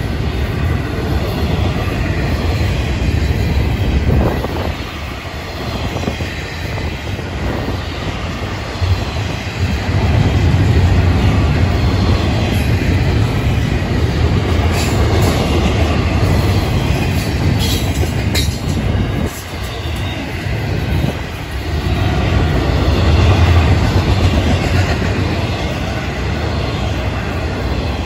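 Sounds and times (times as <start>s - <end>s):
freight train rolling past: 0.0s - 28.0s.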